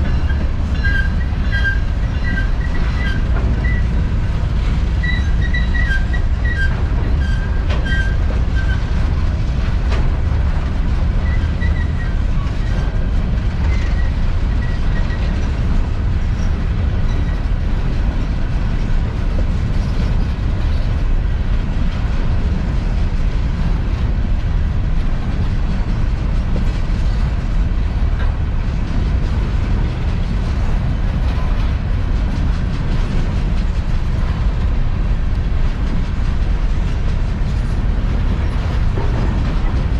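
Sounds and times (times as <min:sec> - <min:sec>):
faint wheel squeal: 0:00.0 - 0:03.9, 0:05.0 - 0:08.9, 0:11.2 - 0:12.9, 0:13.6 - 0:15.3
train wheels rumbling on rail: 0:00.0 - 0:39.9.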